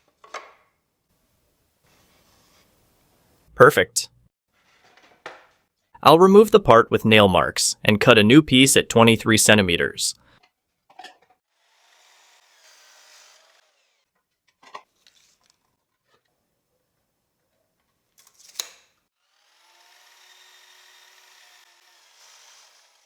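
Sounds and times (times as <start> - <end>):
power saw cutting wood: 11.5 - 14.1, 19.2 - 23.0.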